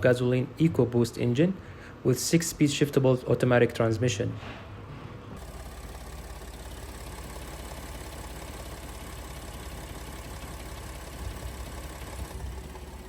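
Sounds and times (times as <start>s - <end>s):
truck engine idling: 5.4s - 13.0s.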